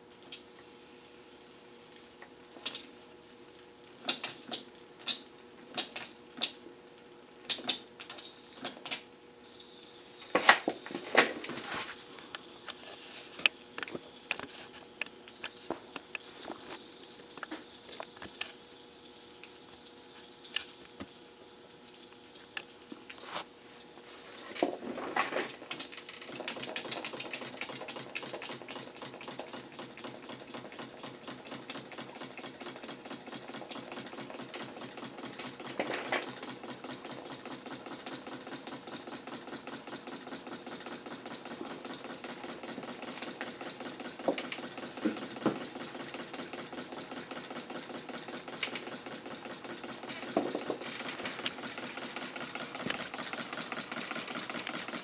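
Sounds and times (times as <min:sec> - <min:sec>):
model steam engine running: 0:26.2 - 0:55.0.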